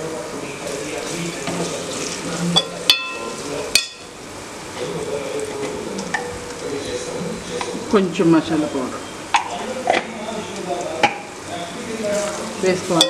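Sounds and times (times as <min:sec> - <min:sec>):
vegetables sizzling in oil: 0:00.6 - 0:06.7, 0:07.8 - 0:13.0
ladle clinking against pot: 0:02.5 - 0:04.1.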